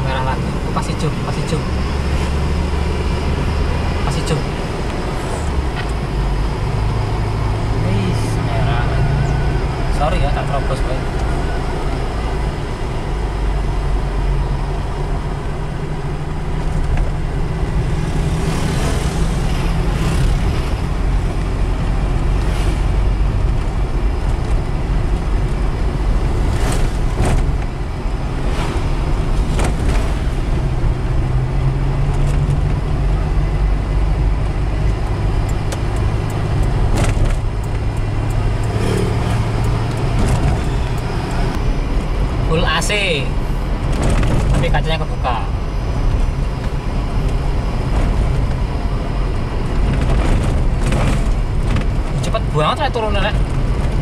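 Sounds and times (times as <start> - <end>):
car engine running: 0.0 - 54.0
road noise: 0.0 - 54.0.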